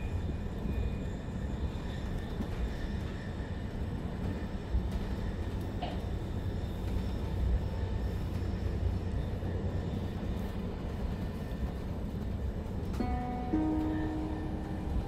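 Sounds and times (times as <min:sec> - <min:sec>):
train coach rumble: 0:00.0 - 0:15.0
onboard chime: 0:13.0 - 0:15.0.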